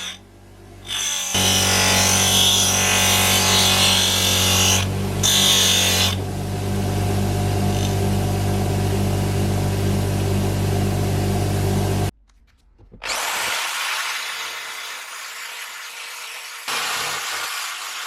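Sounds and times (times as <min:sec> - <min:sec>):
small electric power tool whirring: 0:00.8 - 0:06.2, 0:13.0 - 0:18.0.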